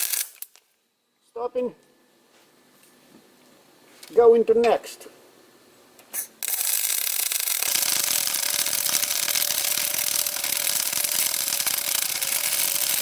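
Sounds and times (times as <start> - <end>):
welding arc crackling hiss: 0.0 - 0.7, 6.1 - 13.0.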